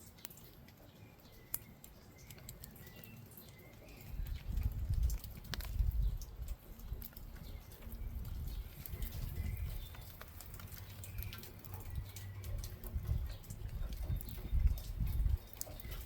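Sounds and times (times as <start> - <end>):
birds calling faintly: 0.0 - 16.0
rain pattering: 0.0 - 16.0
wind rumbling on microphone: 3.6 - 16.0.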